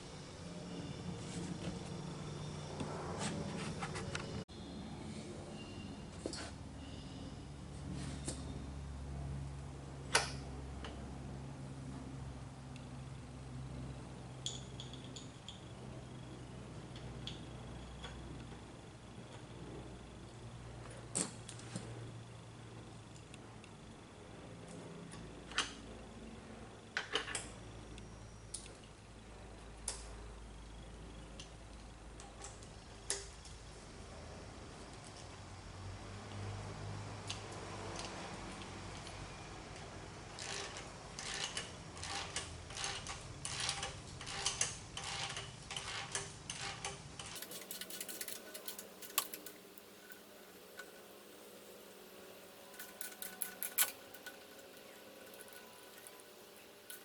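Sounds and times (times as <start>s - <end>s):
faint steady hum: 0.0s - 43.7s, 47.2s - 57.0s
mechanical clicks and ticks: 47.3s - 57.0s.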